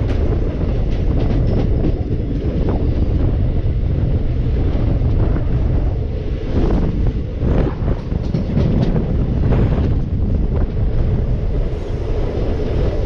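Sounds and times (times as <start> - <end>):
sharp knocks of train wheels: 0.0 - 3.2, 6.6 - 11.0
train wheels rumbling on rails: 0.0 - 13.0
wind buffeting microphone: 0.0 - 13.0.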